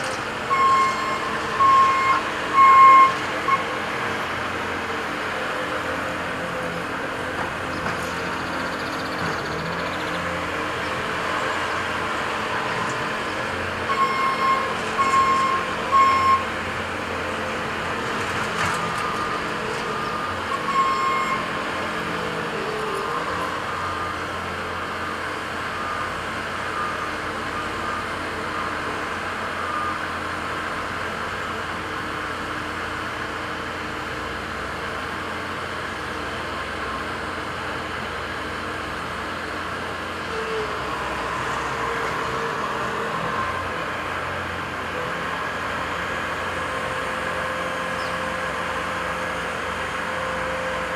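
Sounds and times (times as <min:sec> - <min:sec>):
diesel construction machinery running: 0:00.0 - 0:50.9
reversing alarm beeping: 0:00.5 - 0:03.8, 0:13.9 - 0:16.6, 0:18.9 - 0:21.7.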